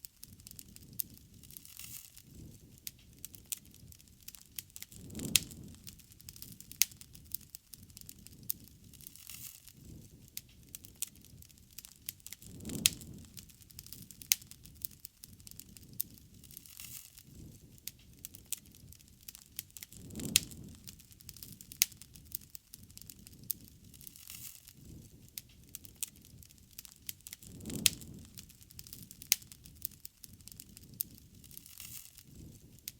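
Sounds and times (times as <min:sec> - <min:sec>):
bonfire crackling: 0:00.0 - 0:32.9.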